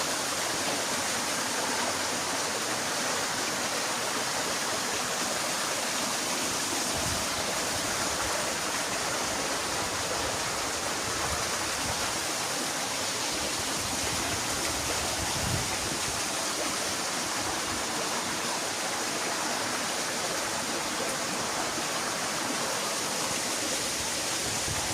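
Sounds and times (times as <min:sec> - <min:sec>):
running water rushing: 0:00.0 - 0:24.9.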